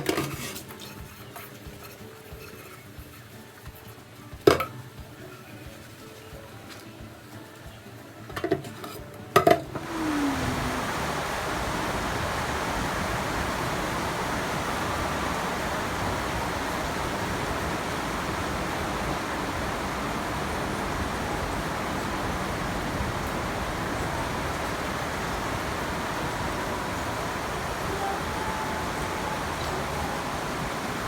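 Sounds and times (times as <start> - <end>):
steady hissing: 9.7 - 31.0.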